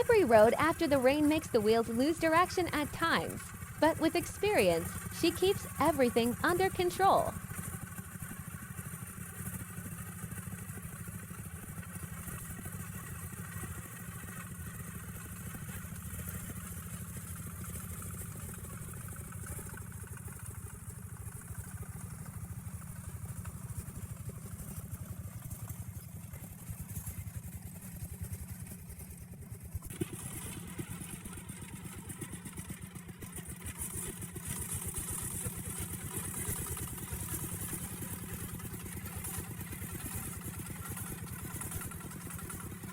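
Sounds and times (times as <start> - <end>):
truck engine chugging: 0.0 - 7.4.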